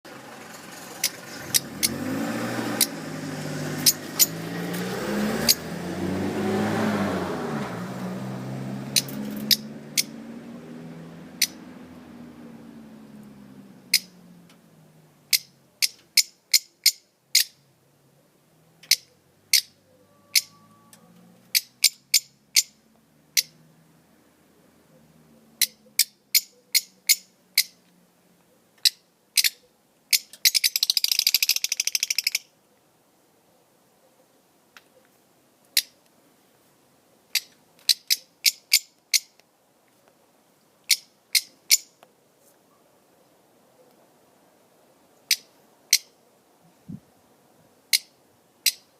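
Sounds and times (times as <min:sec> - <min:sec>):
small songbirds chirping: 0:02.8 - 0:04.8, 0:08.9 - 0:10.2, 0:11.2 - 0:18.1, 0:18.8 - 0:23.7, 0:24.6 - 0:32.6, 0:37.2 - 0:39.4, 0:40.0 - 0:42.1, 0:45.0 - 0:47.0, 0:47.8 - 0:48.9
fast bird trill: 0:18.9 - 0:20.7, 0:28.8 - 0:32.5.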